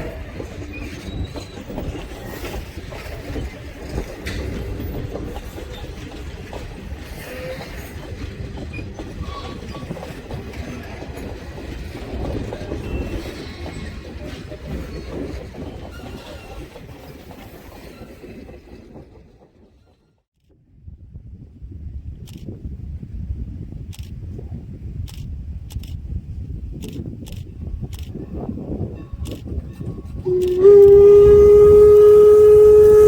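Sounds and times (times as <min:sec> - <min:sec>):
wheel squeals: 0:00.0 - 0:11.0
wheels clattering over rail joints: 0:00.0 - 0:20.0
train rumbling past: 0:00.0 - 0:20.2, 0:27.7 - 0:33.0.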